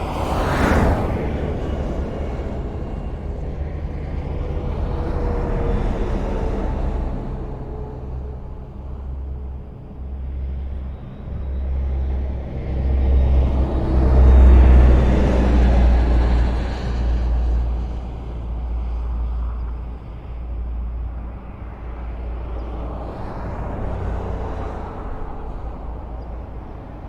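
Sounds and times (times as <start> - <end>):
vehicle passing close: 0.0 - 8.3
highway traffic: 0.0 - 27.0.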